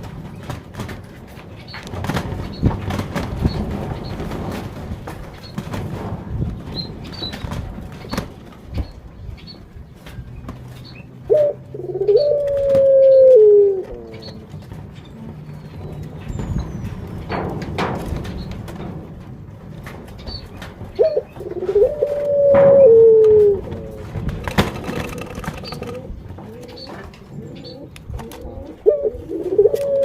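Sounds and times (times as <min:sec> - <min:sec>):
dove cooing: 0:11.3 - 0:14.6, 0:21.0 - 0:30.0
sharp clicks: 0:24.5 - 0:26.1
small birds chirping: 0:24.5 - 0:28.1.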